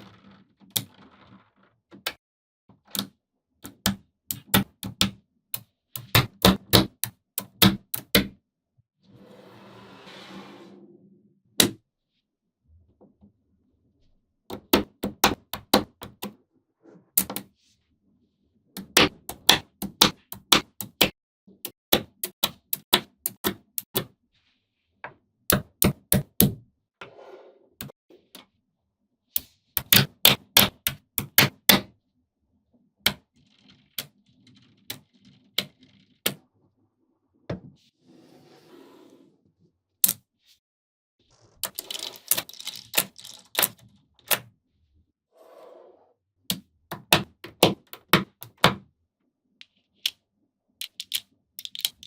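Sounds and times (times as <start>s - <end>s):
magnetic balls clicking together: 50.8s - 52.0s.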